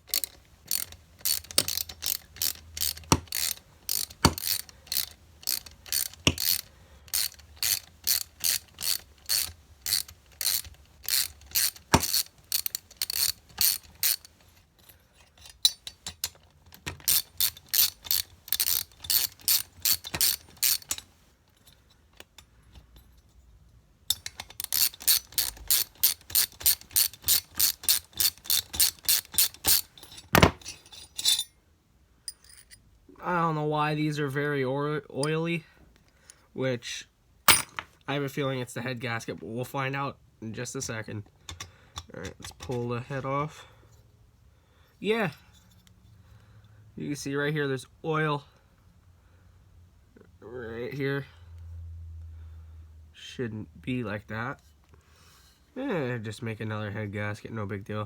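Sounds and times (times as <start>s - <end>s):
socket ratchet clicking: 0.0s - 14.5s, 15.6s - 21.2s, 24.1s - 30.0s.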